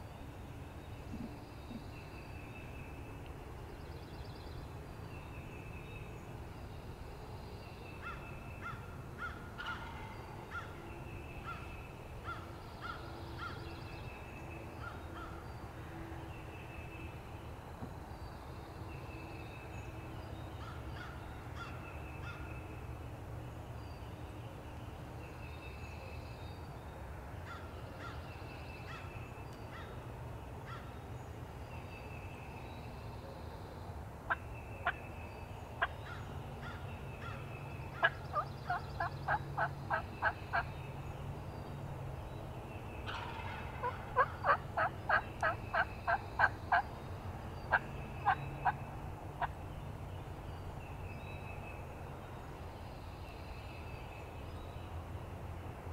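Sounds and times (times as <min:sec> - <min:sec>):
songbirds singing: 0:00.0 - 0:55.9
turkey gobbling calls: 0:09.6 - 0:10.7, 0:38.0 - 0:40.7, 0:43.1 - 0:46.8.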